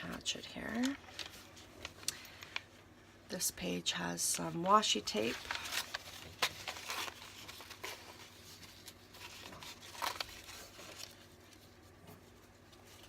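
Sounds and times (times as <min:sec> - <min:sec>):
paper pages rustling: 0:00.0 - 0:02.7, 0:04.4 - 0:13.0.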